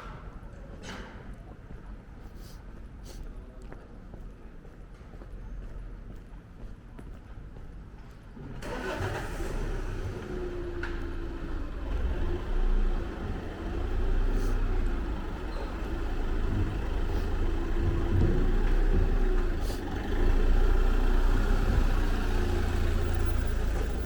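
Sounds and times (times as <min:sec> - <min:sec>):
vehicle engine rumbling: 0:08.6 - 0:24.0.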